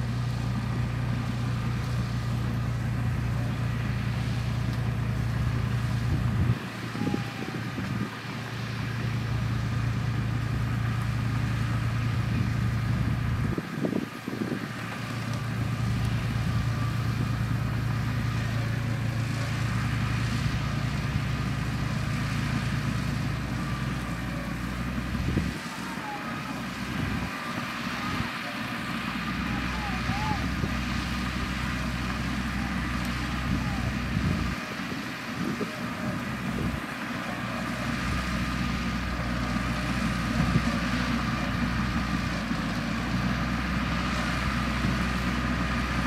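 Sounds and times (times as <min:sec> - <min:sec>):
bulldozer diesel engine droning: 0:00.0 - 0:46.0.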